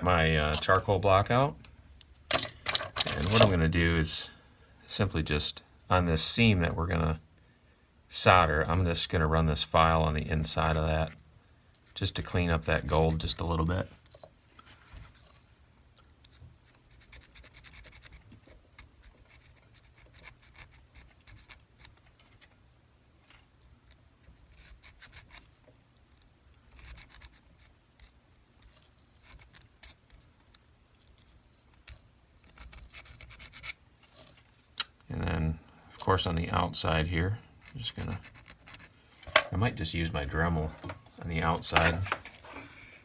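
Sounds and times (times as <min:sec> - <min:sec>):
hand file scraping metal: 0:02.3 - 0:03.6, 0:40.6 - 0:42.8.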